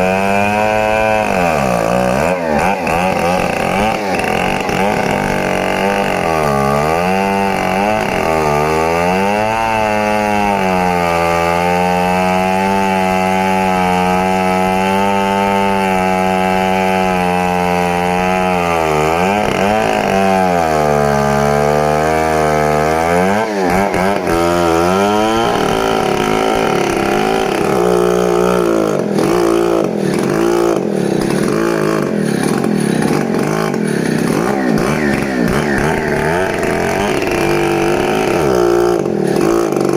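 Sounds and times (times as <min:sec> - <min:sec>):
chainsaw cutting: 0:00.0 - 0:39.9.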